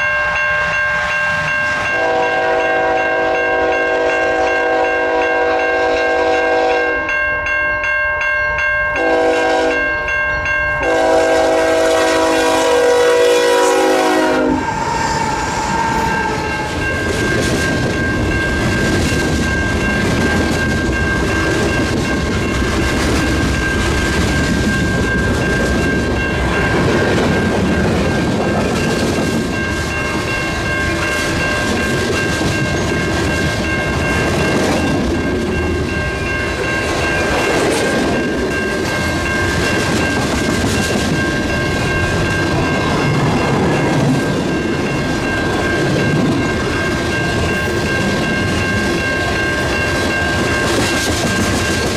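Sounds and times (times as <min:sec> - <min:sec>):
locomotive air horn blasts: 0:01.9 - 0:07.1, 0:09.0 - 0:09.9, 0:10.8 - 0:16.8.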